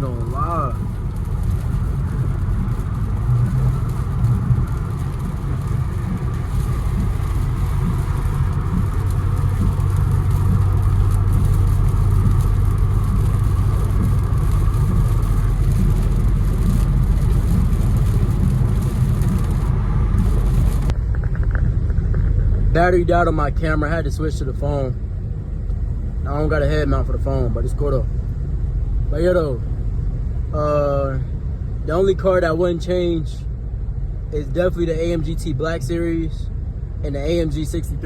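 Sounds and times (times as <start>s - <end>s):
car cabin engine and tyre drone: 0.0s - 38.0s.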